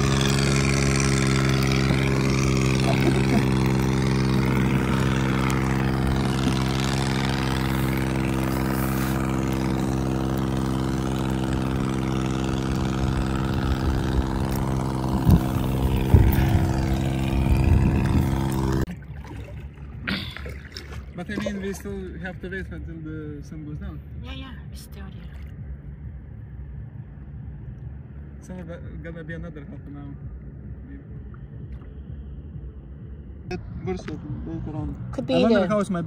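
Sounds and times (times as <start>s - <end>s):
low bumps: 0.0s - 22.9s, 24.1s - 36.0s
motorboat engine running: 0.0s - 36.0s
wind noise: 12.9s - 18.7s.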